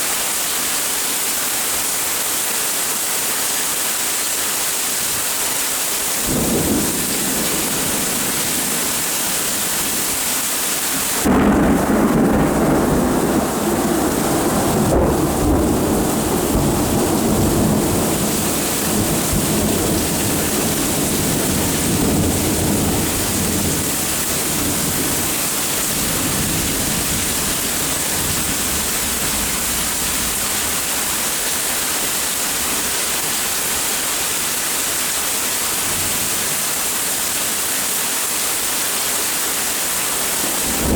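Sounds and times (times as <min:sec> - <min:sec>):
steady rain: 0:00.0 - 0:40.9
thunder clap and rumble: 0:06.2 - 0:10.4, 0:11.0 - 0:30.9, 0:40.4 - 0:40.9.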